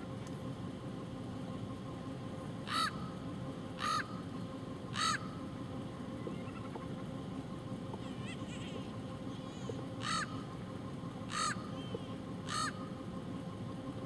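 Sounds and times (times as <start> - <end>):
harsh bird call: 8.2 - 10.4, 11.3 - 12.9.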